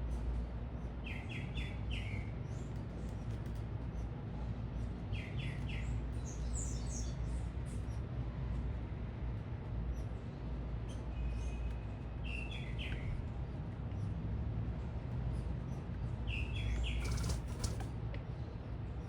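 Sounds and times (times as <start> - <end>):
low city rumble: 0.0 - 19.0
small birds chirping: 4.7 - 8.0, 9.9 - 13.2, 15.4 - 18.8.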